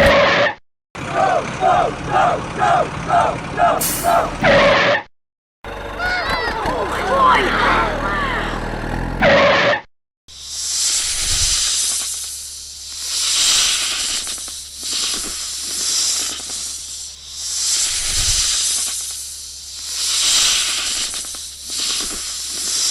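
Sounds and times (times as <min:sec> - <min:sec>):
cartoon snake hissing: 0:03.8 - 0:04.6, 0:10.4 - 0:22.9.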